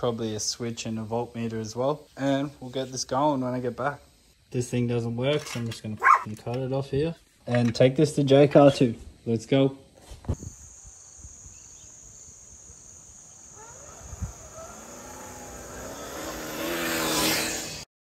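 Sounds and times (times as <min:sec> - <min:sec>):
high insect drone: 0:00.0 - 0:06.9, 0:07.9 - 0:17.9
vehicle engine speeding up: 0:13.4 - 0:17.9.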